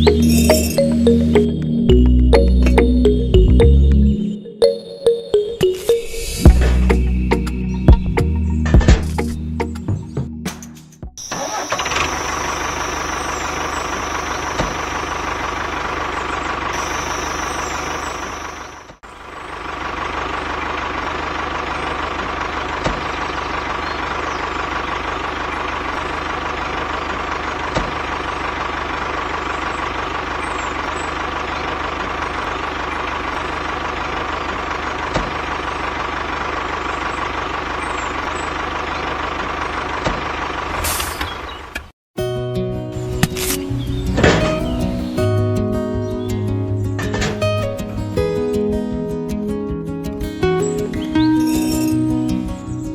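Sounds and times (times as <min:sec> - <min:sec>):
small engine idling: 0:11.2 - 0:41.9.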